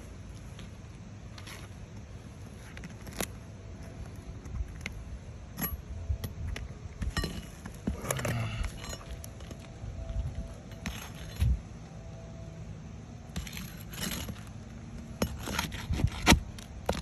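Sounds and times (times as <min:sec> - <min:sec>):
clicks and scrapes on roof shingles: 0:13.3 - 0:17.0.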